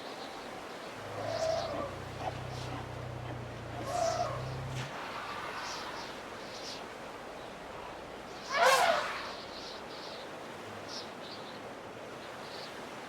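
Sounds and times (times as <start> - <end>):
wild birds calling: 0.4 - 9.8
vehicle engine idling: 1.0 - 4.9.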